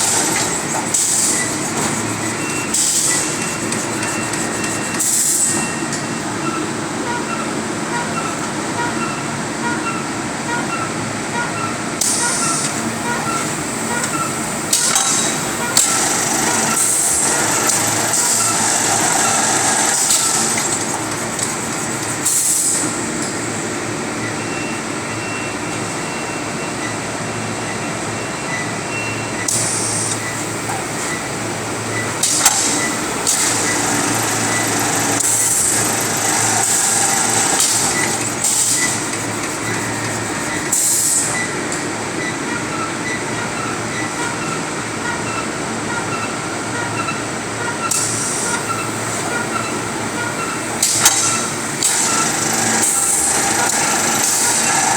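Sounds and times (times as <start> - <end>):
short hissing bursts: 0.0 - 5.6, 12.0 - 23.5, 29.5 - 41.4
packaging machine hum and whine: 0.0 - 54.9.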